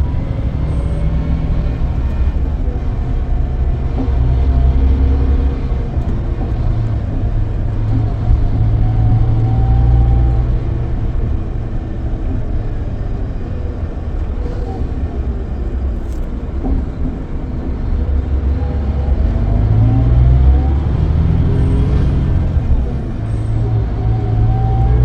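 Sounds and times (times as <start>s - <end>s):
coach engine drone: 0.0s - 25.0s
road rumble: 0.0s - 25.0s.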